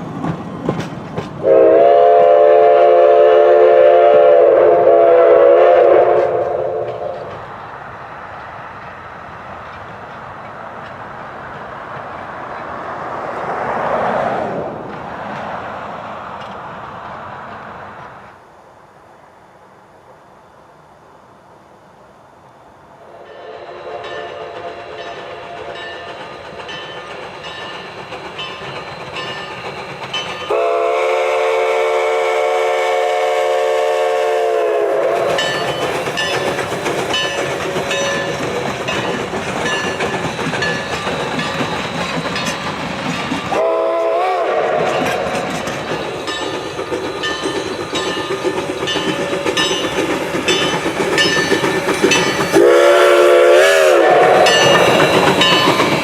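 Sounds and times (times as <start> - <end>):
train rumbling on rails: 0.0 - 56.0
steam whistle blowing: 1.4 - 7.3, 23.1 - 25.9, 30.5 - 35.7, 43.5 - 45.5, 52.2 - 55.6.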